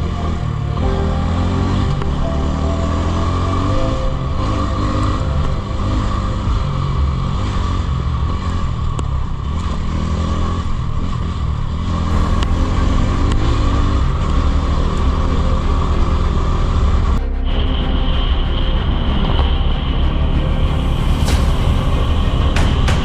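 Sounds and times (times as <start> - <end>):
motorcycle engine revving: 0.0 - 17.7.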